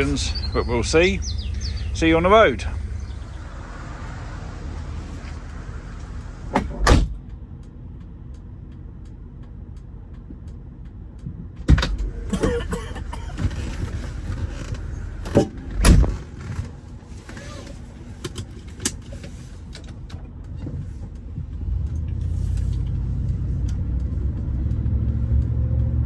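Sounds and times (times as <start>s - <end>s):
faint ticking: 0.0s - 17.2s
car engine and road rumble: 0.0s - 26.0s.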